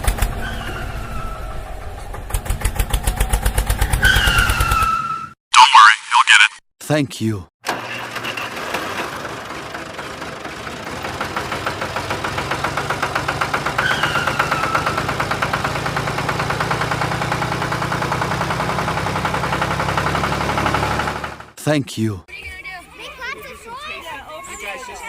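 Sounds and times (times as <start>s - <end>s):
engine knocking: 2.0s - 4.8s, 7.7s - 21.6s.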